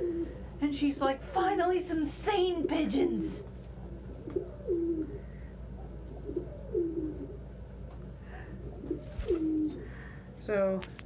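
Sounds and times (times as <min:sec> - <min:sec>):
pigeon cooing: 0:00.0 - 0:00.6, 0:03.8 - 0:10.1.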